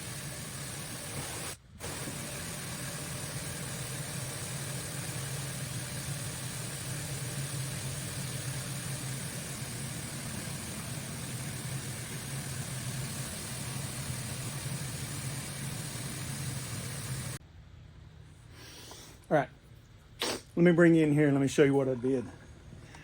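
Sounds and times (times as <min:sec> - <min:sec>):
broad hiss: 0:00.0 - 0:17.4
machine hum: 0:00.0 - 0:18.4.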